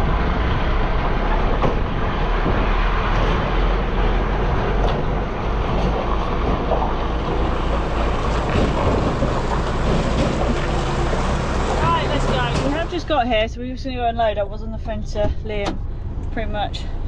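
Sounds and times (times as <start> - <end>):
wind noise on microphone: 0.0 - 11.8
lorry engine and road rumble: 0.0 - 17.0.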